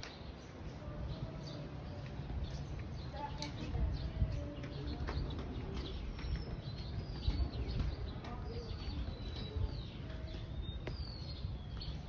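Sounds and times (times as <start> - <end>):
birds whistling: 2.4 - 12.0.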